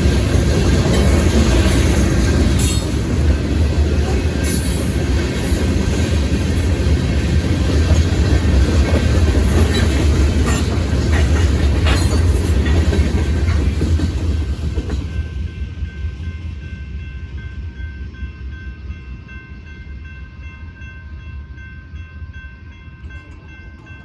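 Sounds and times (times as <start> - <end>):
wheels clacking over rail joints: 0.0 - 15.1
freight train deep rumble: 0.0 - 24.0.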